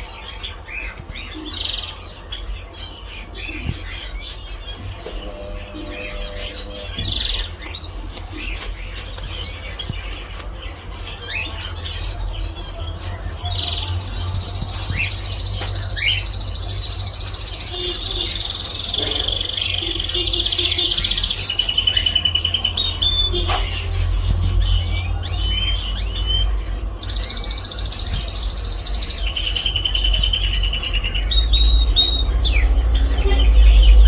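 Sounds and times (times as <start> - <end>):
cockatiel chirping and trilling: 0.4 - 33.5
steady low hum: 3.7 - 11.0.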